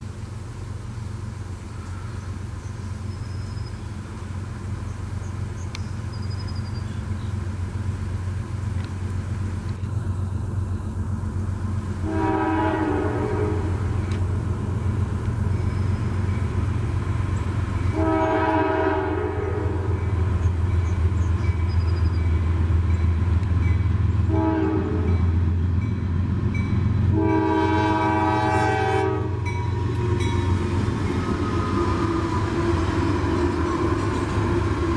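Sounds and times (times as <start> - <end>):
locomotive engine drone: 0.0 - 34.9
train air horn: 12.0 - 14.0, 17.9 - 20.1, 24.3 - 25.4, 27.1 - 29.7.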